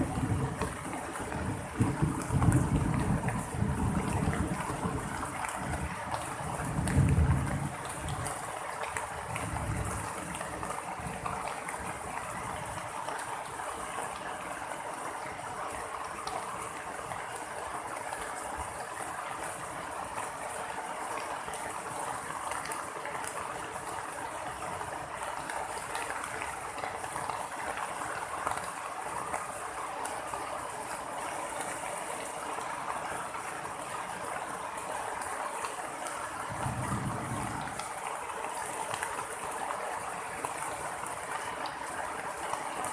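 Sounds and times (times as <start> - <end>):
thunder rumbling: 0.0 - 5.9, 36.5 - 38.0
heavy rain: 0.0 - 42.9.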